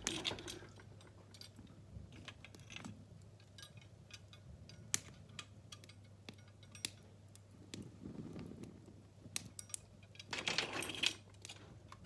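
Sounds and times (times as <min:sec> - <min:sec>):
fire crackling and popping: 0:04.2 - 0:10.4.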